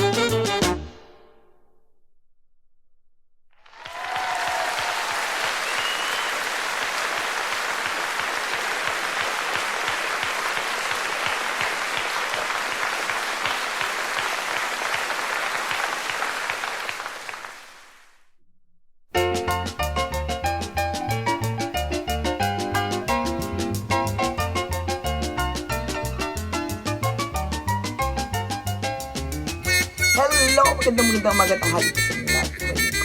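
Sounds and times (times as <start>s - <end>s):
crowd applause: 3.6s - 18.2s
whistle: 5.6s - 6.5s, 29.6s - 33.0s.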